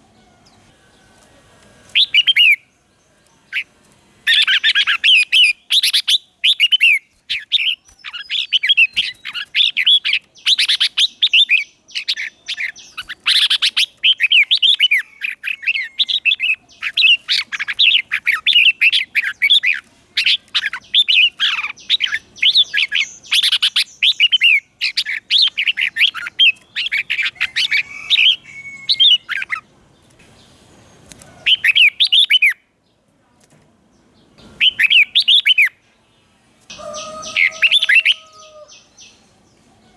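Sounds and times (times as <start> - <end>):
bird singing warbled whistles: 34.6 - 35.7.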